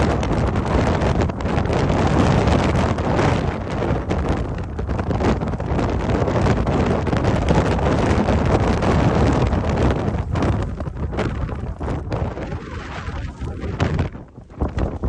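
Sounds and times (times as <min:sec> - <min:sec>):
deep rumble: 0:00.0 - 0:15.0
wind buffeting microphone: 0:00.0 - 0:15.0.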